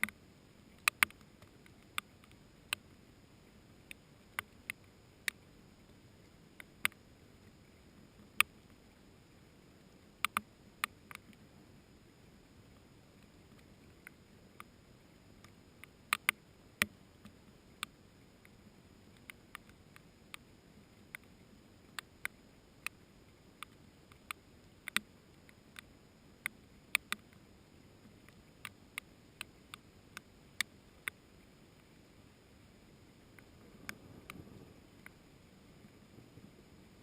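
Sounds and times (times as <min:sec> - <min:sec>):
raindrops dripping: 0:00.0 - 0:08.9
faint hiss of rain: 0:00.0 - 0:37.0.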